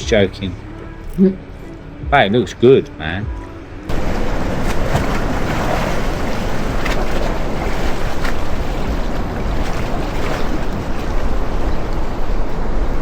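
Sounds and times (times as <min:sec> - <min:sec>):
wind buffeting microphone: 0:03.9 - 0:13.0.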